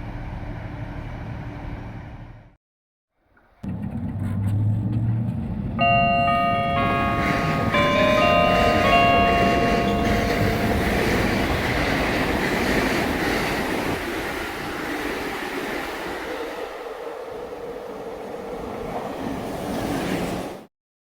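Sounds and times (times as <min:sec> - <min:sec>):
train rumbling on rails: 0:03.5 - 0:20.7
chime tones: 0:05.8 - 0:11.0.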